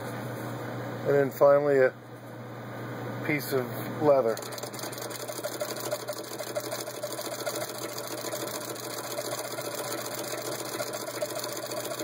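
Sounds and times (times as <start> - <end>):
hand-crank sewing machine clatter: 4.4 - 12.0.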